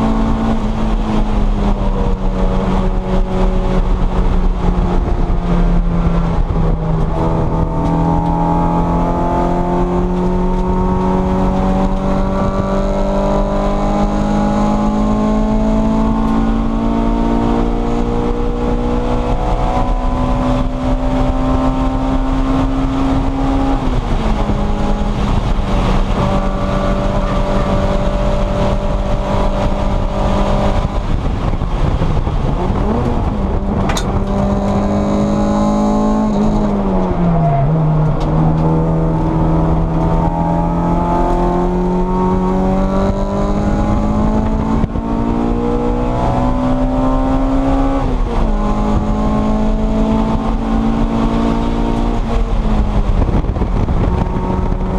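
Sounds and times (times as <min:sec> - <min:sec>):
car engine running hard: 0:00.0 - 0:54.9.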